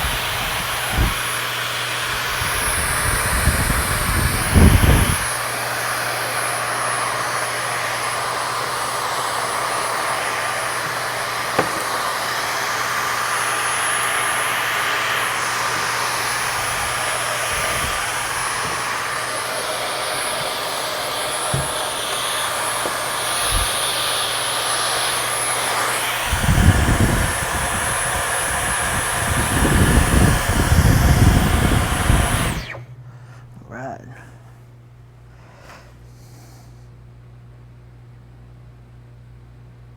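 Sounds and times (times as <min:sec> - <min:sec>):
vacuum cleaner whining: 0:00.0 - 0:33.5
nozzle knocking and rumbling: 0:15.6 - 0:23.8.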